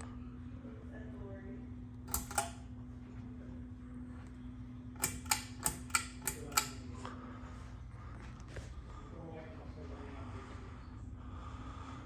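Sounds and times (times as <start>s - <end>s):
steady low hum: 0.0s - 12.0s
pull-chain switch clicking: 2.1s - 2.6s, 5.0s - 6.8s.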